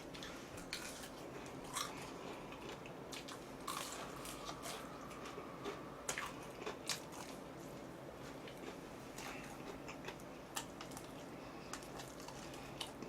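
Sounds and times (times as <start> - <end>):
person biting and chewing food: 0.2 - 7.4.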